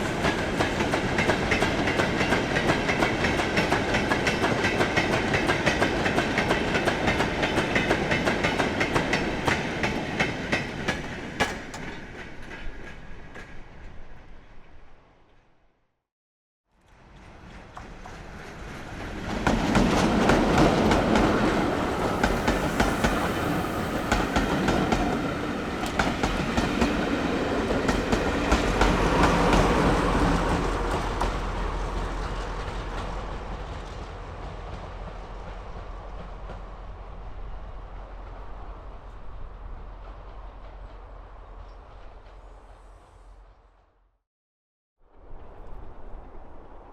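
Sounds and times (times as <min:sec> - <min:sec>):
train wheels clicking over rail joints: 0:00.0 - 0:13.7, 0:16.9 - 0:36.8.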